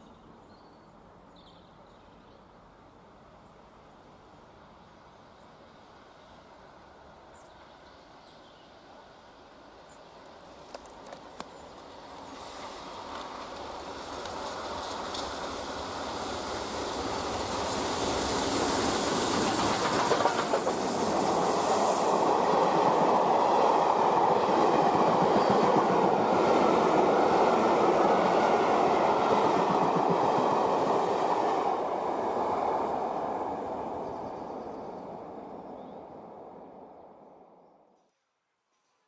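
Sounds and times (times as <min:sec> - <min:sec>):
train rumbling past: 0:11.6 - 0:37.8.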